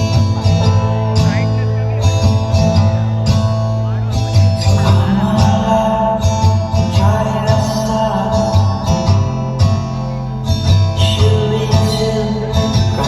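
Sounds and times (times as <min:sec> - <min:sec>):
loud music with pulsing bass beat: 0:00.0 - 0:13.0
singing: 0:11.0 - 0:13.0.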